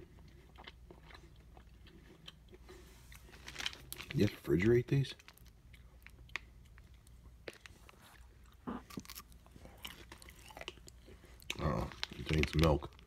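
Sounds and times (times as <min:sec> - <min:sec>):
faint chewing mouth sounds: 0:00.0 - 0:04.0, 0:05.2 - 0:13.0.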